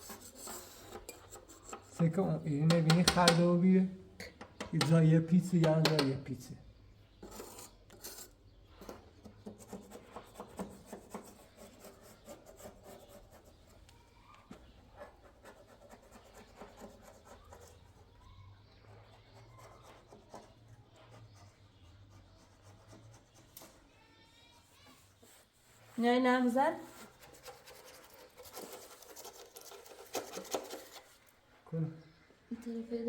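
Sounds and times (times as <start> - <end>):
rubbing and scraping on wood: 0.0 - 3.4, 7.2 - 18.1, 24.6 - 31.4.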